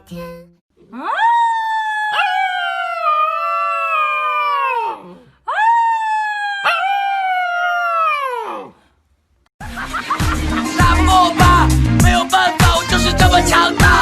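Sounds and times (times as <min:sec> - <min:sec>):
dog howling: 0:00.8 - 0:08.8.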